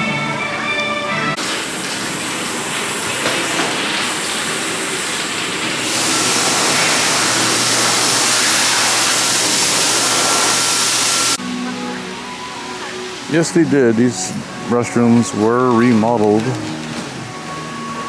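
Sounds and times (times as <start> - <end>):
electric hand dryer blowing: 1.4 - 11.4.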